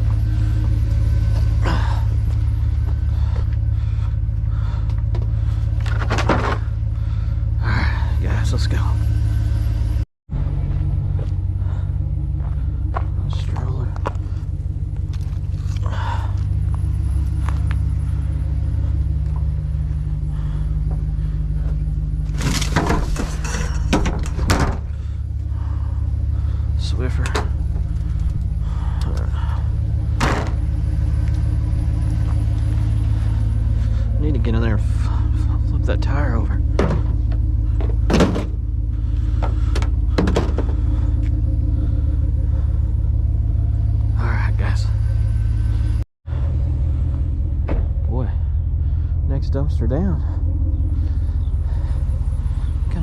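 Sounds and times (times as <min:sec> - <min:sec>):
truck engine idling: 0:00.0 - 0:53.0
clattering knocks and rattles: 0:04.8 - 0:07.0, 0:20.8 - 0:25.2, 0:30.0 - 0:30.8, 0:36.6 - 0:41.1
knocks and thumps: 0:30.2 - 0:30.6, 0:36.7 - 0:38.6, 0:39.4 - 0:40.8.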